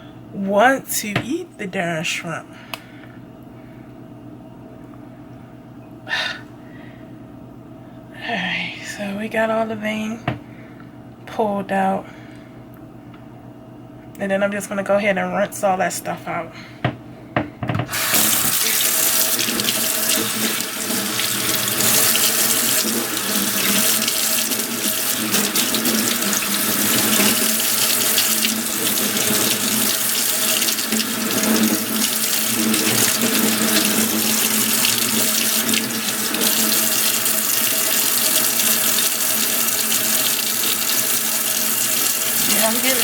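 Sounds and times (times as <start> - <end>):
faucet running into a sink: 17.9 - 43.0.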